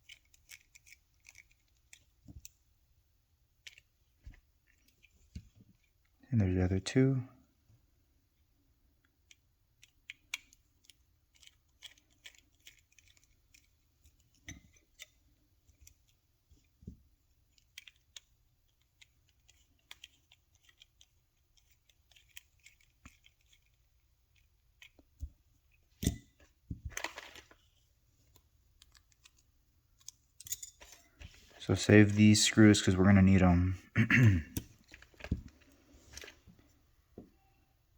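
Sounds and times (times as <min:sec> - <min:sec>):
small screwdriver clicks and scratches: 0:00.0 - 0:02.6, 0:09.2 - 0:16.2, 0:17.5 - 0:25.3
small parts clattering: 0:26.0 - 0:29.4, 0:30.0 - 0:31.4.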